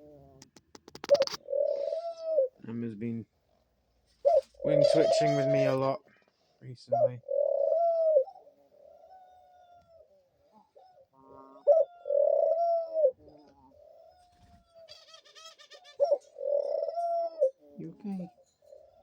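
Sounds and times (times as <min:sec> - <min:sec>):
dove cooing: 0:00.0 - 0:02.7, 0:04.2 - 0:06.0, 0:06.8 - 0:19.0.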